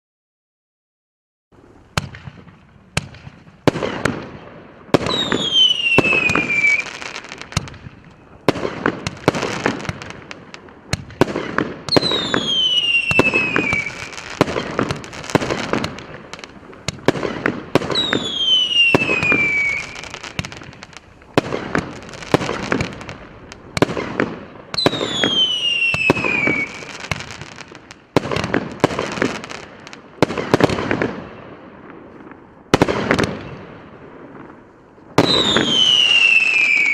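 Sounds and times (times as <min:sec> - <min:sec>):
fireworks crackling bursts: 0:01.6 - 0:36.9
fireworks launch thumps and pops: 0:02.0 - 0:04.3, 0:04.9 - 0:10.2, 0:10.9 - 0:23.2
falling whistle: 0:05.1 - 0:06.9, 0:35.3 - 0:36.9.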